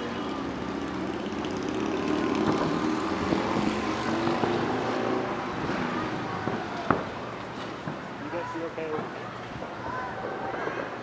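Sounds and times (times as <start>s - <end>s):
distant fireworks bursting: 2.3s - 11.0s.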